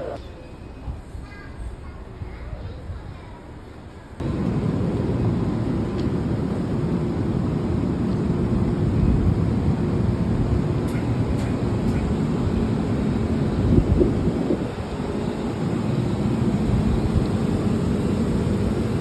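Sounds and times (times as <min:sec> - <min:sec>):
train rumbling: 0:03.9 - 0:19.0.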